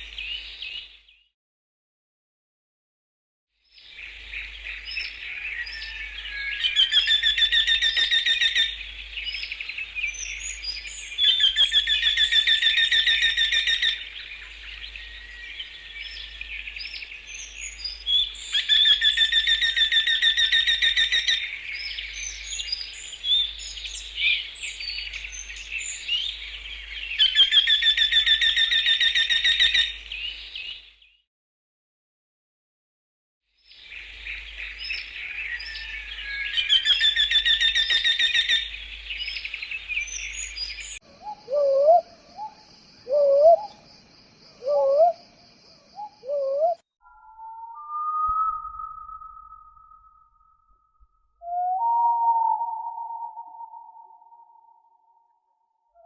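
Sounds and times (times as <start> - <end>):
songbirds chirping: 0.0 - 1.2, 3.8 - 31.2, 33.7 - 50.5
bird singing fast trill: 4.0 - 31.2, 33.8 - 43.8, 46.0 - 50.9.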